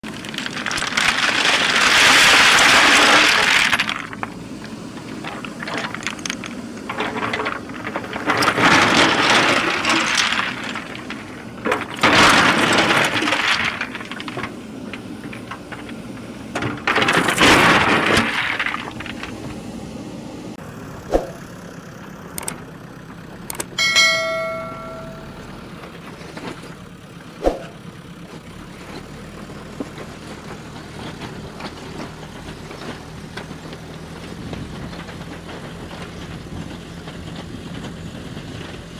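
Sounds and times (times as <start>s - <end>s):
diesel engine running: 0.0s - 38.9s
ringing metallic clang: 23.8s - 25.4s.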